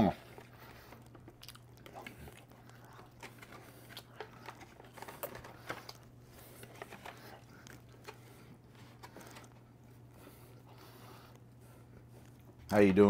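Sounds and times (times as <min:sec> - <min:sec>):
man chewing close to microphone: 0:00.0 - 0:12.8
steady low hum: 0:00.0 - 0:13.0
mouth clicks and smacks: 0:01.0 - 0:03.3.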